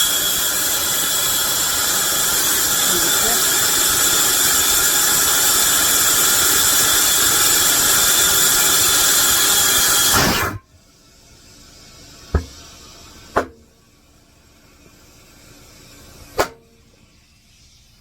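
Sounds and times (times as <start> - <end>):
compressed air hissing into tyre: 0.0 - 18.0
sharp knocks: 12.4 - 12.6, 13.4 - 13.6, 16.4 - 16.6.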